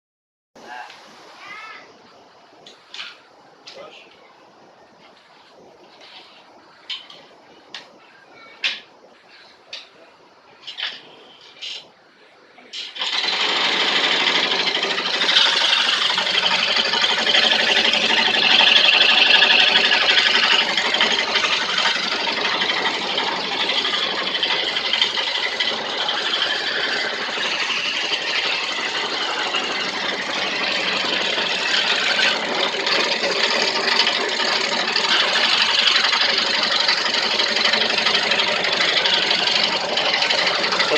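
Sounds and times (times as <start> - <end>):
carving machine whirring: 12.8 - 40.9.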